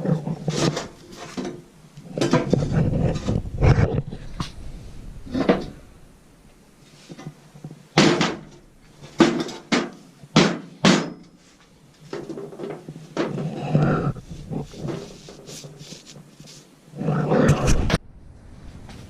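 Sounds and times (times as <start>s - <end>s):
scraping and rubbing: 0.0s - 4.6s, 11.4s - 18.0s
sharp knocks: 8.0s - 8.6s, 9.2s - 11.2s.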